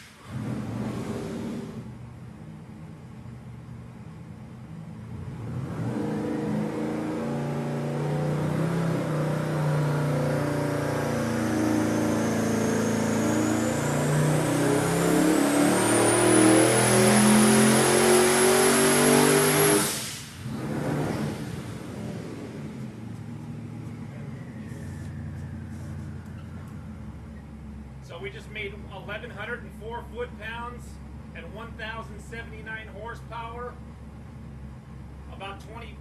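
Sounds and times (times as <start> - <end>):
engine revving at full throttle: 0.0 - 2.0, 5.1 - 23.0.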